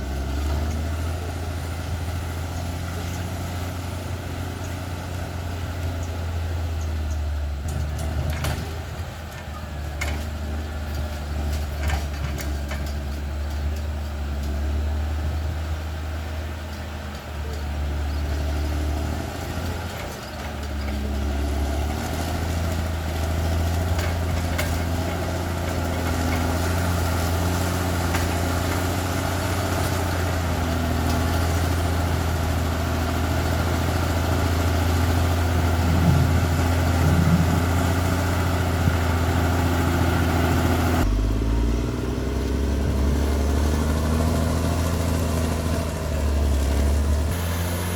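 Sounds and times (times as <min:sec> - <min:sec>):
bulldozer diesel engine running: 0:00.0 - 0:47.9
clanks and knocks: 0:07.6 - 0:14.6.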